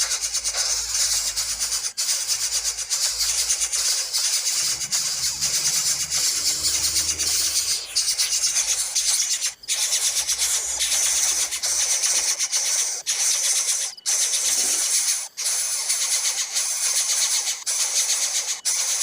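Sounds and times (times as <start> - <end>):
bird chicks begging calls: 0.0 - 19.0.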